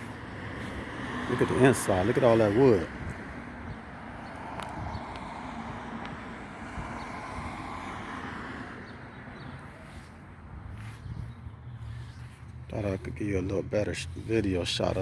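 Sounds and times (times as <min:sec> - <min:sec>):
wind on microphone: 0:02.9 - 0:07.6, 0:09.8 - 0:12.2.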